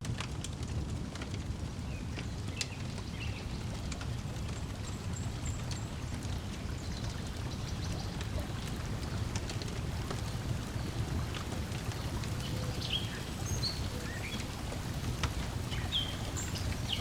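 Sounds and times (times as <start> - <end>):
wood fire crackling: 0.0 - 17.0
lake water lapping at shore: 3.6 - 17.0.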